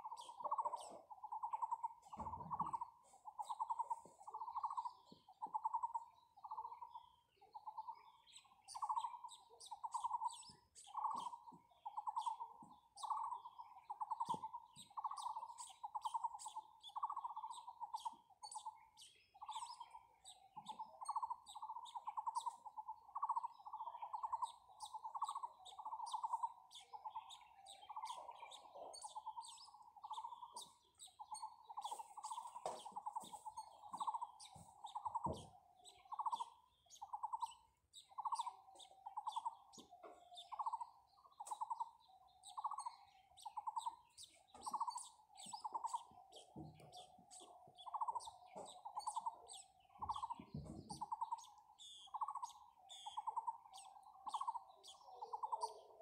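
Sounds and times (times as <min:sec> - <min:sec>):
high bird chirps and tweets: 0:00.0 - 0:56.0.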